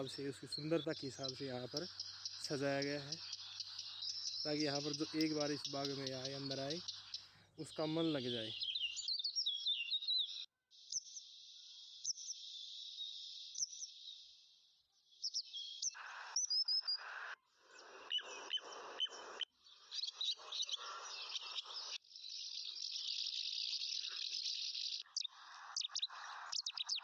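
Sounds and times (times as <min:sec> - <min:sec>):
bursts of low broadband noise: 0:00.0 - 0:06.9
small birds chirping: 0:00.0 - 0:27.0.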